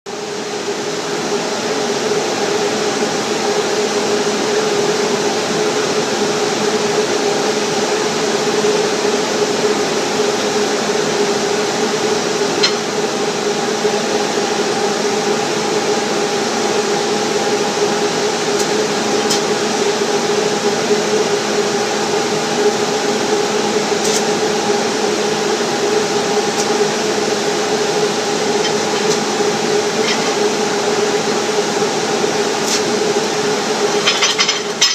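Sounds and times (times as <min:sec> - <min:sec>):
welding arc noise: 0:16.3 - 0:20.4, 0:22.3 - 0:34.9
sharp welding pops: 0:24.0 - 0:24.3.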